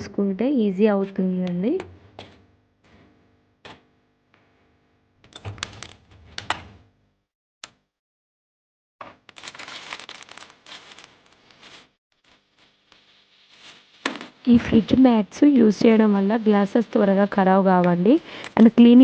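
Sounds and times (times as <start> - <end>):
small clicks and rustling: 9.2 - 13.0.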